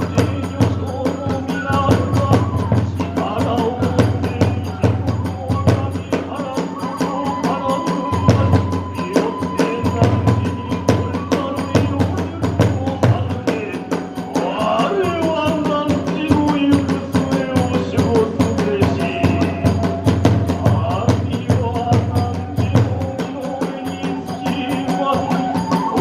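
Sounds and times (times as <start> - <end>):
small hand cymbals: 0.0 - 26.0
taiko drum: 0.0 - 26.0.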